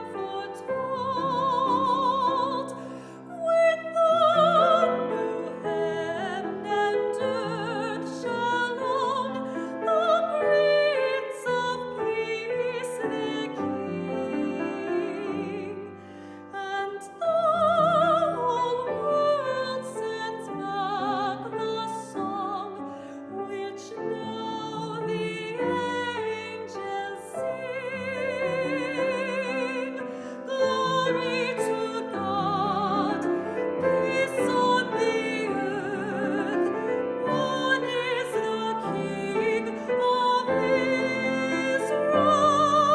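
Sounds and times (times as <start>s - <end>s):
piano accompaniment: 0.0s - 42.9s
soprano singing: 0.0s - 42.9s.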